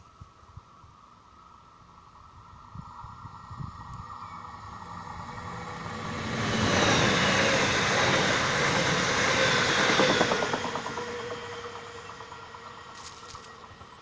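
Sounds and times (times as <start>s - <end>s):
train wheels rushing on rail: 3.7s - 14.0s.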